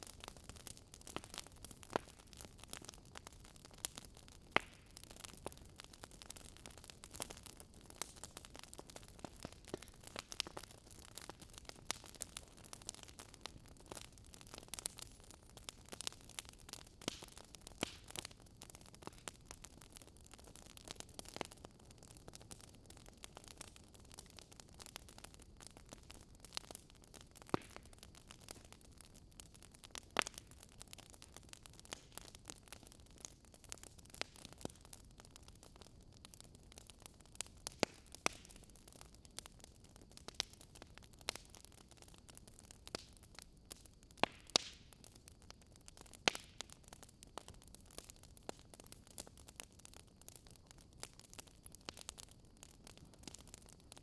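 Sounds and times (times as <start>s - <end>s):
soft steady hiss: 0.0s - 54.0s
wood fire crackling: 0.0s - 54.0s.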